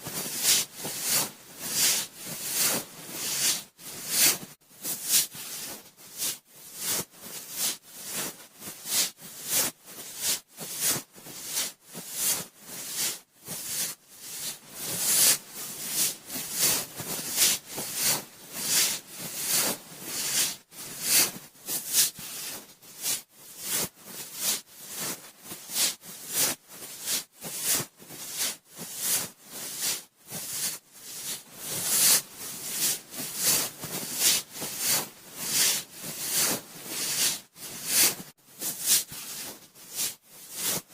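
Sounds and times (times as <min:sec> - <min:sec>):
cotton swab rubbing microphone ear: 0:00.1 - 0:40.9.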